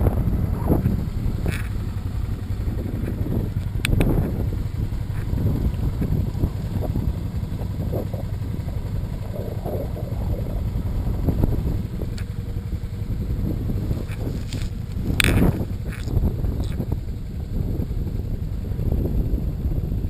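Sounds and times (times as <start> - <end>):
motorcycle engine: 0.0 - 20.0
wind buffeting microphone: 0.0 - 20.0.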